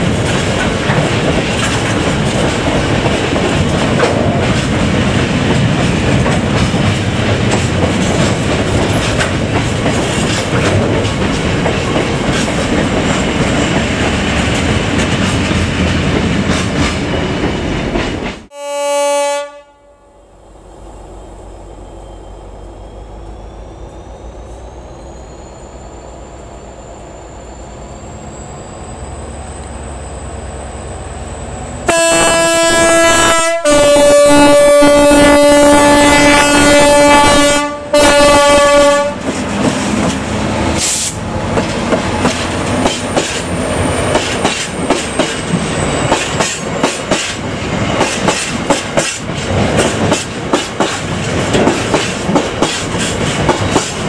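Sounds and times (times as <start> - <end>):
wheels clacking over rail joints: 0.0 - 18.5, 38.6 - 54.0
diesel locomotive engine whining: 0.0 - 54.0
two-tone train horn: 18.5 - 20.2, 31.9 - 39.4.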